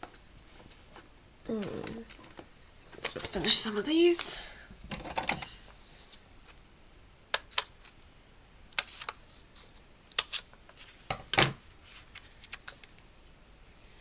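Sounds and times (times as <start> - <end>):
paper rustle: 11.6 - 12.9.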